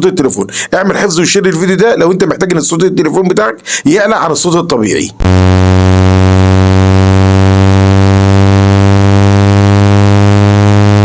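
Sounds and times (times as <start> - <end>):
low buzzing tone: 5.2 - 11.0.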